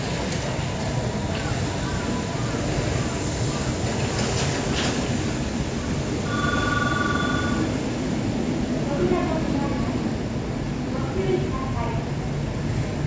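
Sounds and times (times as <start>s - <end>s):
train station steady noise: 0.0s - 13.0s
electronic bell ringing: 6.2s - 7.8s.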